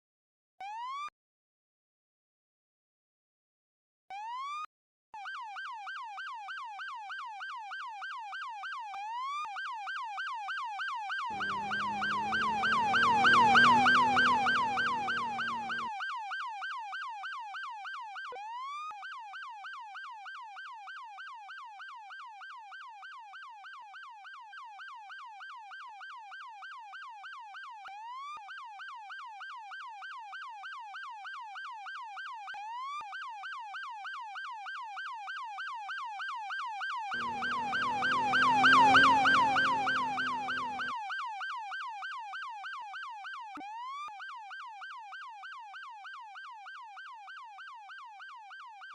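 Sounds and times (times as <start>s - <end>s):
emergency siren yelping: 0.6s - 1.1s, 5.2s - 48.9s
engine and road rumble: 11.2s - 16.0s, 37.1s - 41.0s.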